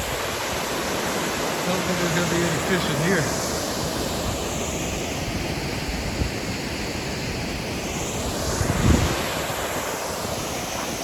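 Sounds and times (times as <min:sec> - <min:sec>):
waterfall rushing: 0:00.0 - 0:11.0
wind buffeting microphone: 0:03.2 - 0:11.0.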